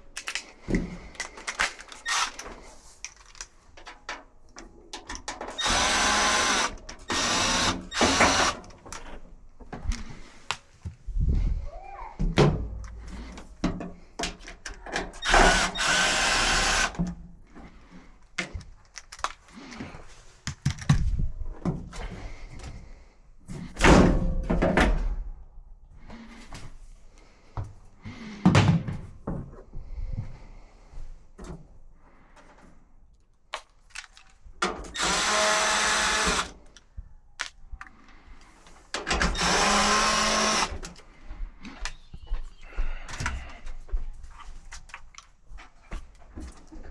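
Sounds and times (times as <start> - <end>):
parts knocking and clattering: 0.0 - 11.0, 12.2 - 17.7, 18.3 - 22.9, 23.5 - 25.4
power drill running: 2.0 - 2.4, 5.5 - 8.6, 15.2 - 17.0, 35.0 - 36.6, 39.2 - 41.0.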